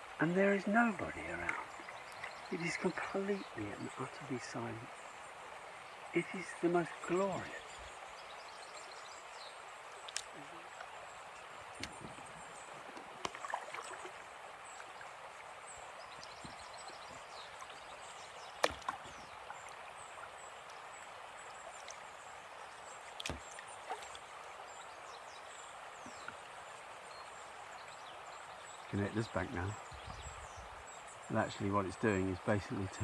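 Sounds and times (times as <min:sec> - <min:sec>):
small birds chirping: 0:00.0 - 0:33.0
kayak paddle splashing: 0:05.7 - 0:28.8.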